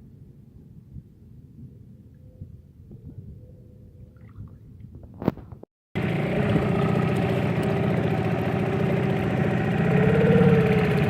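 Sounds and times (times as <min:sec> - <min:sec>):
outboard motor running: 0:06.0 - 0:11.0.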